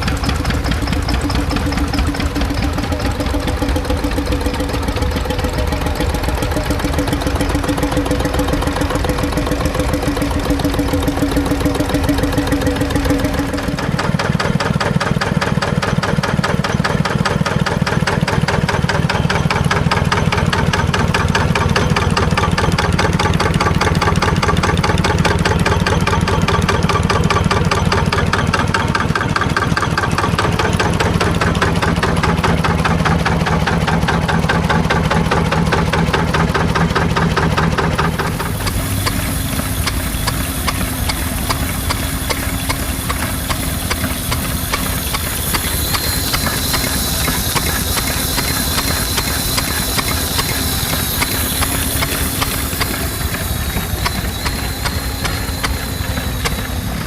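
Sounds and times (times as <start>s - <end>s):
stationary engines clattering: 0.0s - 57.0s.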